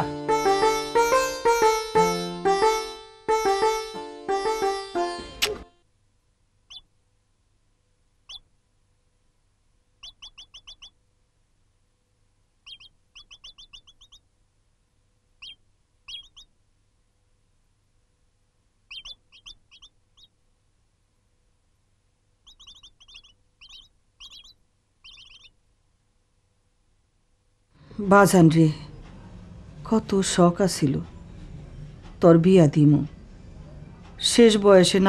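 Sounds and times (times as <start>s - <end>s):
small birds chirping: 6.6s - 7.0s, 8.2s - 8.6s, 10.0s - 11.0s, 12.6s - 14.3s, 15.3s - 16.6s, 18.8s - 20.5s, 22.4s - 25.6s.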